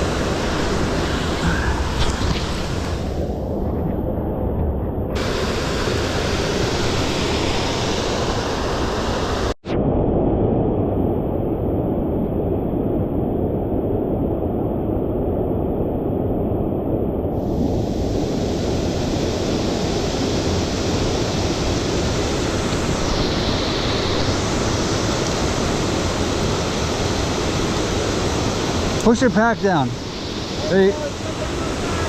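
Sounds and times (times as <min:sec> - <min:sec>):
stream water rushing: 0:00.0 - 0:03.4, 0:18.0 - 0:32.0.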